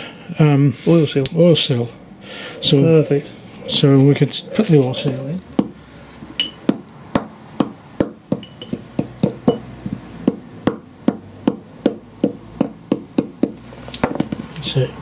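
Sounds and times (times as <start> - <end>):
hammer tapping metal: 6.4 - 14.2.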